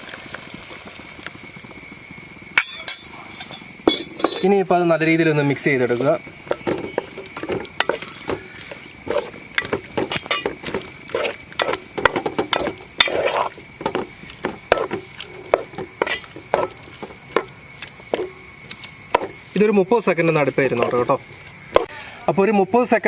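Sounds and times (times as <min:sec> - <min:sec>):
spatula stirring sauce in pan: 0:06.4 - 0:18.4
utensil clicking and scraping pan: 0:06.5 - 0:17.5.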